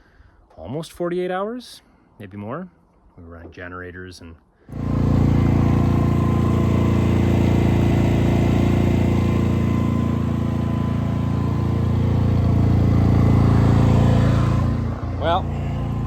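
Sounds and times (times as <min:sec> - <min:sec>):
generator engine running: 0:04.7 - 0:16.0.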